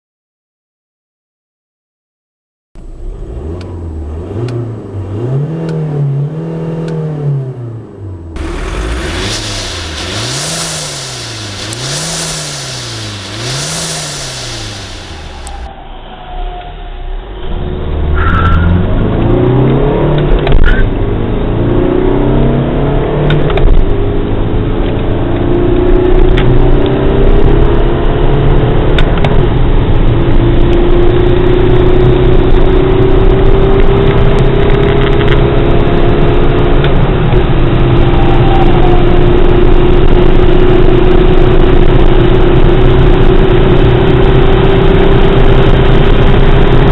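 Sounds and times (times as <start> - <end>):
diesel engine revving: 2.8 - 15.7
car engine accelerating hard: 2.8 - 15.8, 17.0 - 46.9
rush of noise: 8.3 - 17.4.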